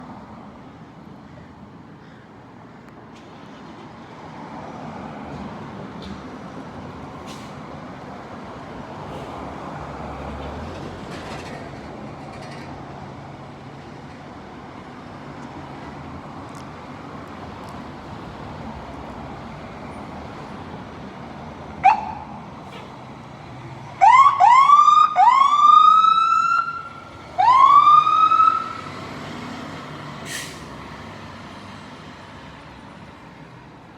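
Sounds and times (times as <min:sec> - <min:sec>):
street traffic: 0:00.0 - 0:33.9
fire engine siren: 0:21.8 - 0:22.6, 0:24.0 - 0:30.6.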